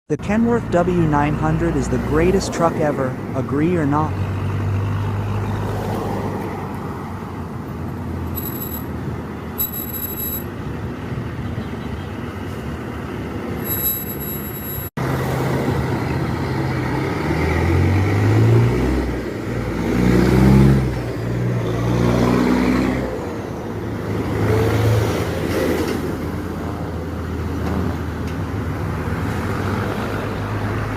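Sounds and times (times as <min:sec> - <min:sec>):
short high beeps: 0:08.4 - 0:08.9, 0:09.6 - 0:10.5, 0:13.6 - 0:14.9.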